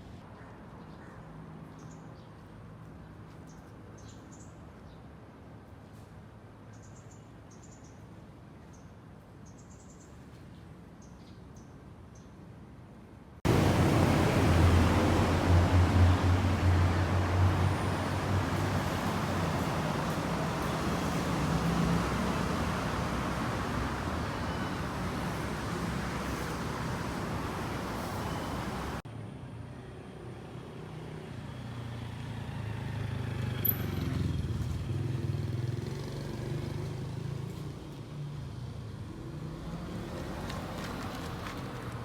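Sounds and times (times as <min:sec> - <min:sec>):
passing cars: 0:13.5 - 0:29.0, 0:30.7 - 0:42.0
vehicle engine rumble: 0:13.5 - 0:29.0.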